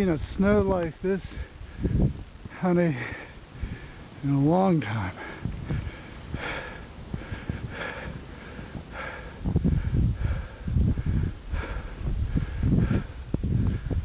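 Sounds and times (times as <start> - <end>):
person breathing heavily: 1.3 - 4.2, 4.8 - 14.0
low thuds and rumble: 8.7 - 14.0.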